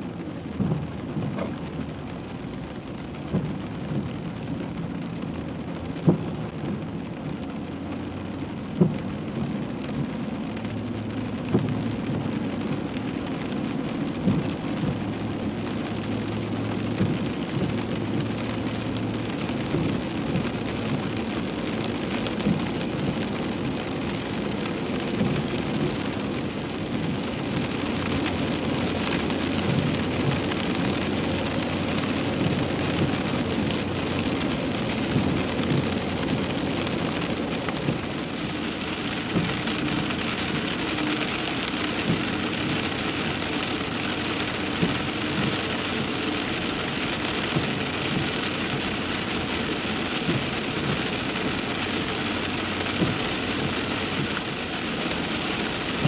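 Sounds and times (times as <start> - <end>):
heavy rain drumming on car roof: 0.0 - 56.0.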